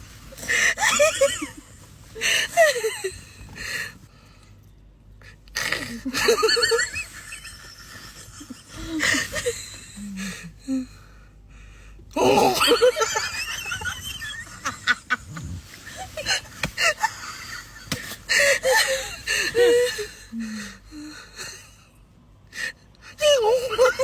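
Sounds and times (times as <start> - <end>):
person making comic vocal sounds: 12.2 - 12.6.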